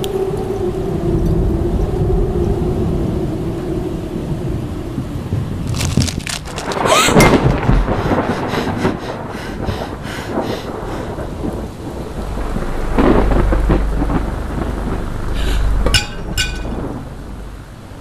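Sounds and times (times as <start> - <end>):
steady rain: 0.0 - 18.0
thunder rumbling: 0.0 - 18.0
sharp ringing hits: 15.9 - 16.9.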